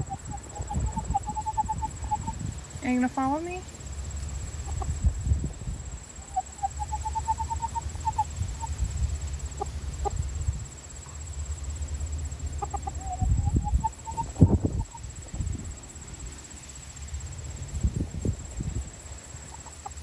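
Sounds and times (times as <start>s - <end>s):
rooster clucking: 0.0s - 2.4s, 4.5s - 5.1s, 6.2s - 8.8s, 12.6s - 15.0s.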